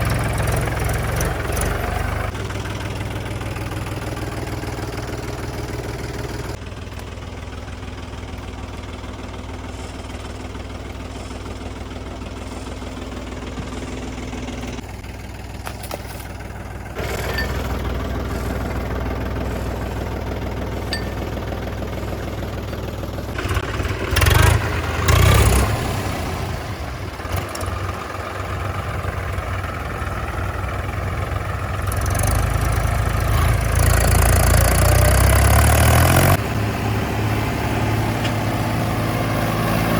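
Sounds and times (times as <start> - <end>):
heavy diesel engine running: 0.0 - 39.9
short loud engine bursts: 16.2 - 28.5.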